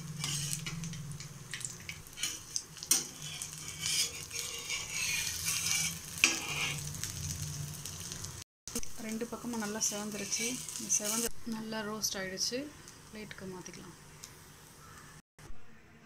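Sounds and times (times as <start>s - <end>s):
metal spatula scraping pan: 0.0s - 0.8s, 2.1s - 6.9s
cutlets sizzling in oil: 0.0s - 15.2s.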